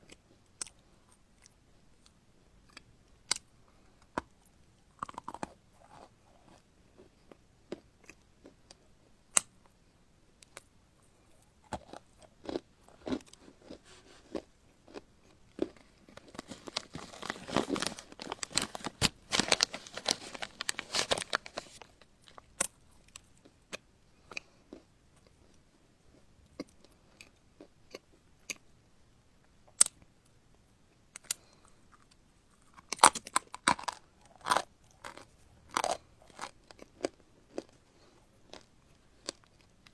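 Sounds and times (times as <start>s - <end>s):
person chewing crunchy food: 5.0s - 8.6s, 11.6s - 24.9s, 31.3s - 39.8s.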